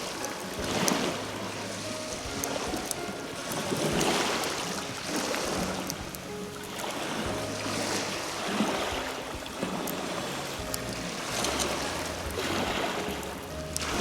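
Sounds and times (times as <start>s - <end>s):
soft background music: 0.0s - 14.0s
surf washing on a beach: 0.0s - 14.0s.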